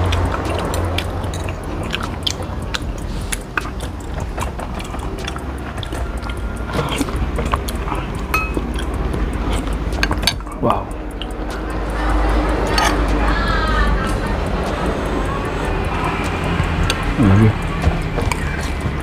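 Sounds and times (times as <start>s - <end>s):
mouth and cutlery clicks: 0.0s - 14.8s
close chewing and biting: 0.0s - 19.0s
steady low hum: 0.0s - 19.0s.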